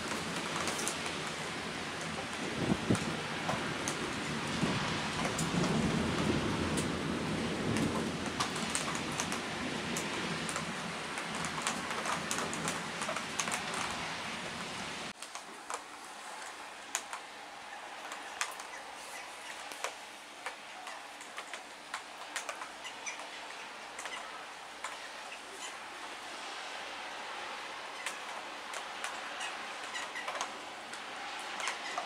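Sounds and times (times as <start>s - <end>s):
thunder rumbling: 0.0s - 15.1s
raindrops ticking on a hard surface: 0.0s - 17.3s, 19.4s - 25.1s, 27.9s - 32.0s
heavy rain: 0.0s - 32.0s.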